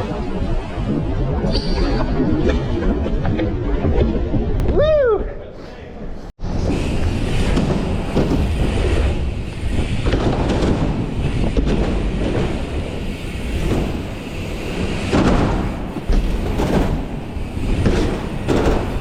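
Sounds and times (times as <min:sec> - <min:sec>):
dirt bike tyres rolling over ramps: 0:06.4 - 0:19.0.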